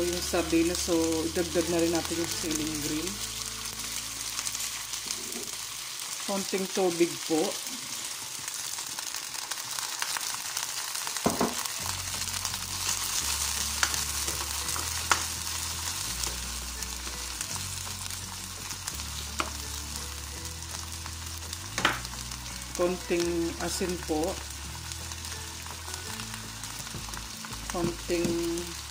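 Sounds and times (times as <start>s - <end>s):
soft background music: 0.0s - 7.8s, 10.2s - 28.9s
fish sizzling in a pan: 0.0s - 28.9s.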